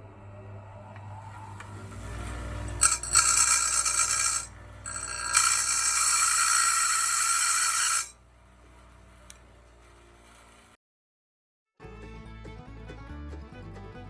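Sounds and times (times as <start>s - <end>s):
grinder motor hum: 0.0s - 10.7s
grinding wheel on steel: 1.0s - 10.8s.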